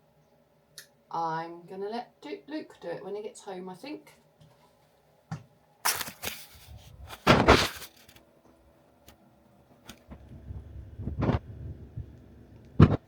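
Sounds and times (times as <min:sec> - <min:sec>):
packaging crackling and scraping: 0:05.8 - 0:08.2.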